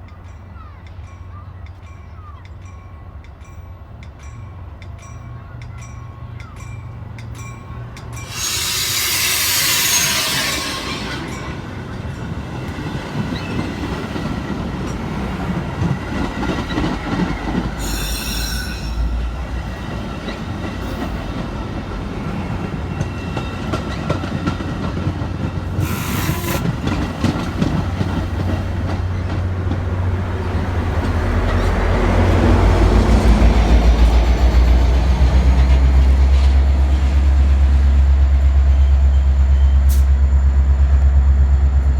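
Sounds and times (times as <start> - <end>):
train wheels running on rails: 0.0 - 41.9
train hiss and squeal: 8.1 - 12.7, 17.7 - 19.4, 25.6 - 27.8, 38.1 - 40.6.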